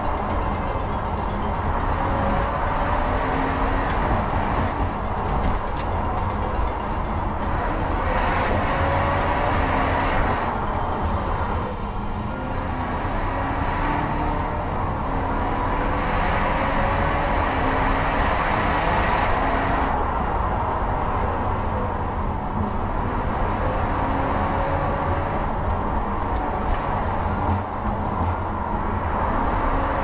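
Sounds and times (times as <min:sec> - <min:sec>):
car engine revving: 0:00.0 - 0:20.2
road and tyre noise: 0:00.0 - 0:30.0.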